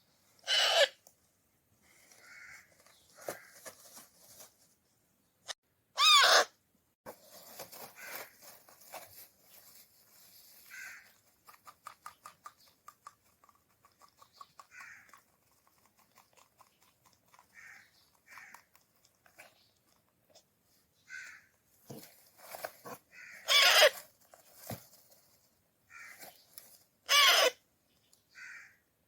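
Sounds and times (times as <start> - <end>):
parrot chick screeching: 0.4 - 1.0, 6.0 - 6.6, 23.2 - 24.0, 27.1 - 27.6
parrot rasping calls: 0.4 - 1.0, 6.0 - 6.6, 23.2 - 24.0, 27.1 - 27.6.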